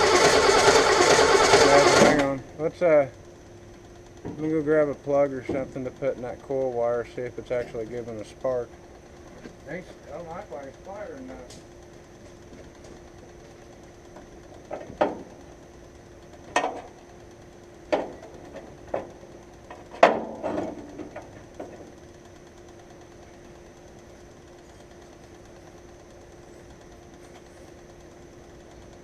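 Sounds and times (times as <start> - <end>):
sharp knocks and clanks: 4.2 - 4.5, 5.4 - 6.7, 14.1 - 15.4, 16.4 - 17.0, 17.9 - 21.9.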